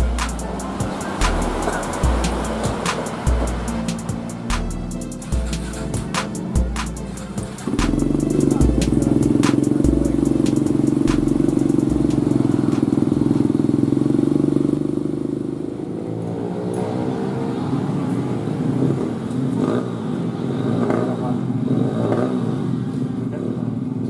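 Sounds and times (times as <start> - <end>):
motorcycle engine running: 0.0 - 16.1.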